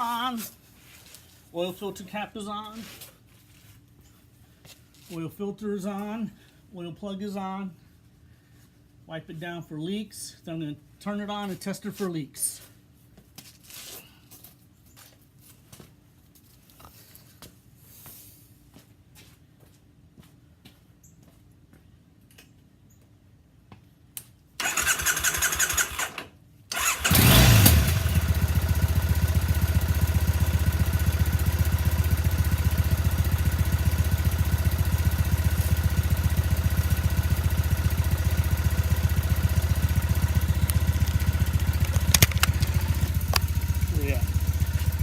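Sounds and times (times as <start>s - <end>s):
motorcycle engine cranking: 24.6s - 29.4s, 33.9s - 45.0s
motorcycle engine idling: 26.8s - 45.0s.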